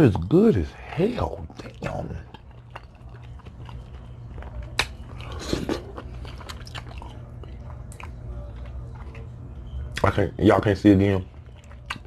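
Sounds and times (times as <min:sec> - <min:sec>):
person chewing food: 0:01.4 - 0:10.0, 0:11.3 - 0:12.0.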